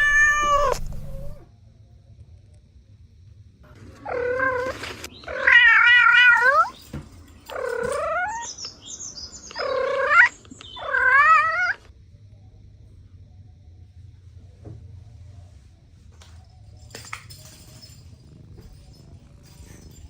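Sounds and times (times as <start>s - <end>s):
cat meowing: 0.0s - 1.4s, 4.0s - 6.8s, 7.5s - 8.5s, 9.6s - 11.8s.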